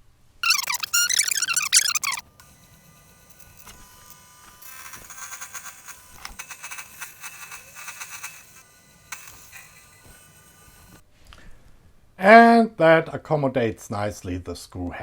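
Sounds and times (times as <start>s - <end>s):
end mill cutting metal: 0.4s - 11.0s
milling spindle whine: 0.4s - 11.0s.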